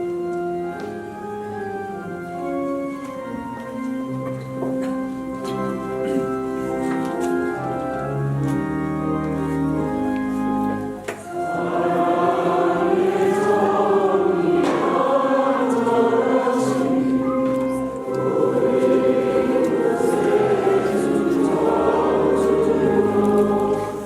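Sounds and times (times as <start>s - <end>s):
church organ playing a hymn: 0.0s - 24.0s
choir singing: 11.3s - 24.0s.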